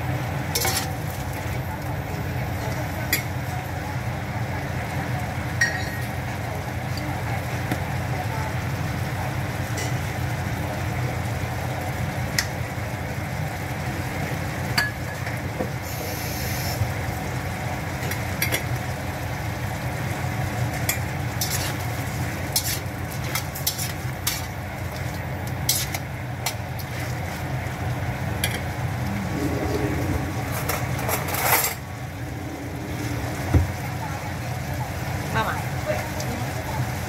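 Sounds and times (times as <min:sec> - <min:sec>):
food sizzling in a pan: 0:00.1 - 0:37.0
spatula scraping a pan: 0:21.4 - 0:21.8, 0:22.6 - 0:24.5.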